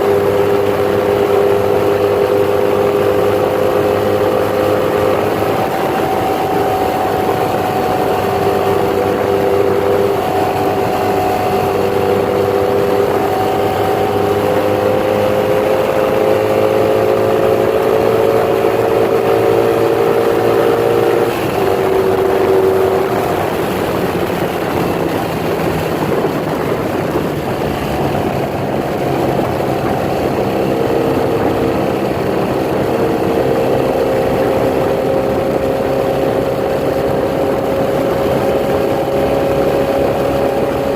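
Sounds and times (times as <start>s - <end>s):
motorcycle engine exhaust note: 0.0s - 40.9s.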